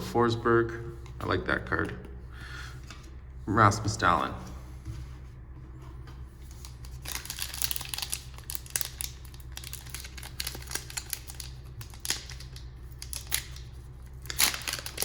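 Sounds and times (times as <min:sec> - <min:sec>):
low steady hum: 0:00.0 - 0:15.0
foil wrapper crinkling and tearing: 0:06.5 - 0:15.0.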